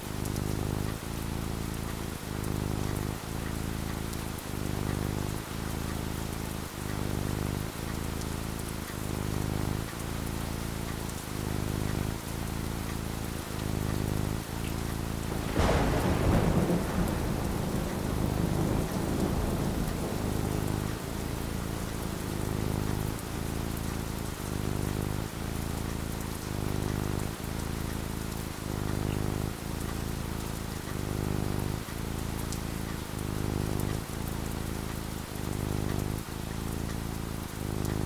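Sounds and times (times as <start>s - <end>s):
steady rain: 0.0s - 38.0s
rumbling thunderclap: 15.1s - 25.4s.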